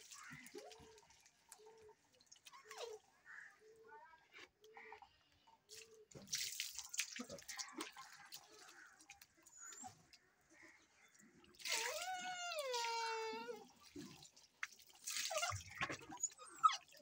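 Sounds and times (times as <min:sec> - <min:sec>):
water splashing and dripping: 0:00.0 - 0:03.3, 0:05.6 - 0:17.0
high-pitched cry: 0:11.7 - 0:13.7.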